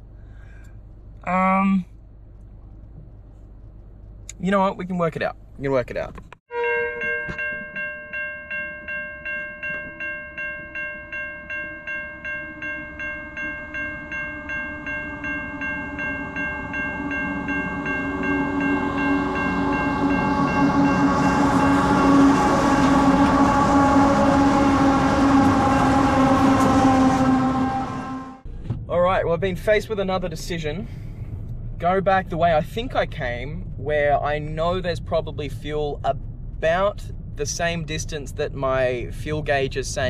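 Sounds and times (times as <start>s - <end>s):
level crossing bell ringing: 6.5s - 22.2s
freight train rumbling: 8.8s - 40.0s.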